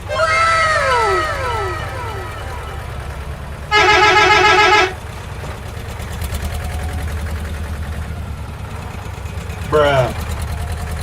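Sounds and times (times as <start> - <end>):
low engine rumble: 0.0 - 11.0
vehicle horn honking: 0.1 - 5.3.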